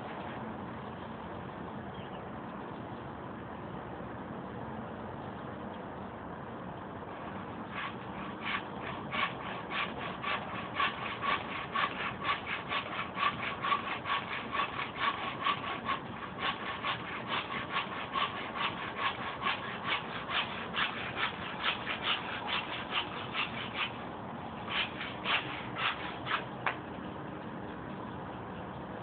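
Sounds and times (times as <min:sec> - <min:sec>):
hand saw cutting wood: 0:07.2 - 0:24.0, 0:24.6 - 0:26.8.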